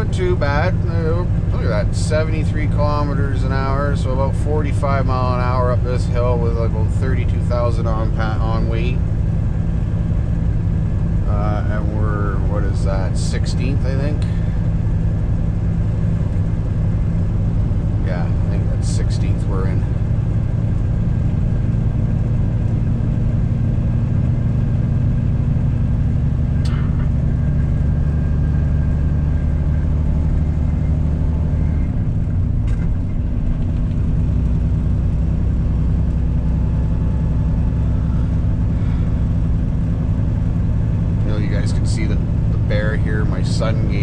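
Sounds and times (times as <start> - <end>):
truck diesel engine under load: 0.0 - 44.0.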